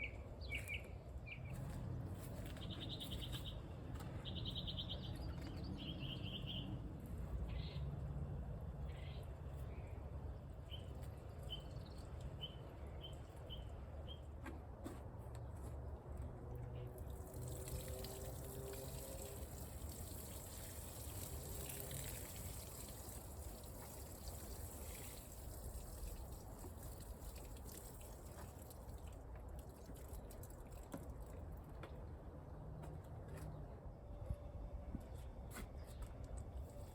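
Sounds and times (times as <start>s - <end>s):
water splashing from hose: 17.0s - 31.7s.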